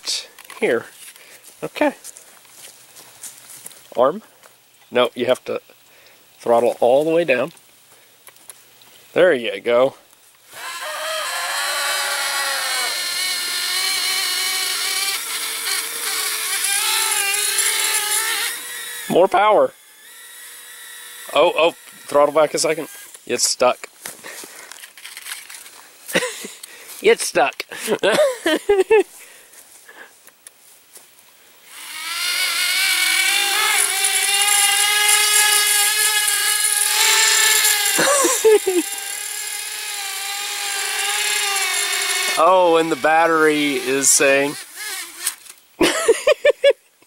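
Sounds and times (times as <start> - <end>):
propeller motors whining: 10.5 - 23.3, 31.7 - 45.6.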